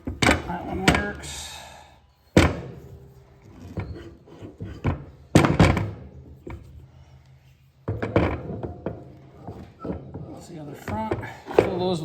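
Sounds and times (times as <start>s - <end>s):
metal parts knocking on work surface: 4.6s - 6.7s, 7.9s - 10.2s.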